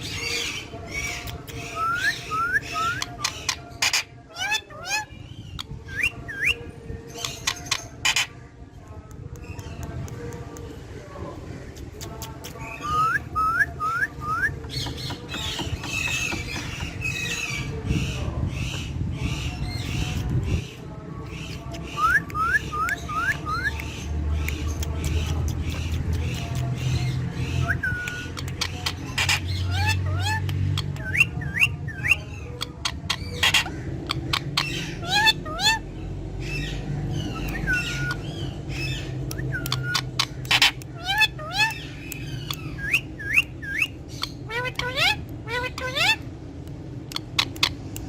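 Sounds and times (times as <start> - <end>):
parrot chattering: 25.0 - 35.9, 37.3 - 48.0.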